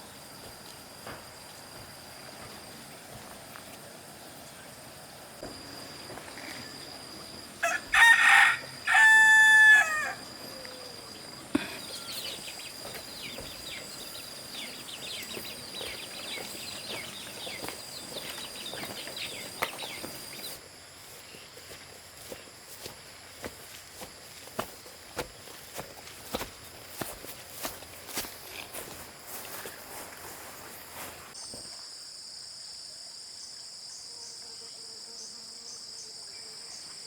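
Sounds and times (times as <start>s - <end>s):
rooster crowing: 7.6s - 10.7s.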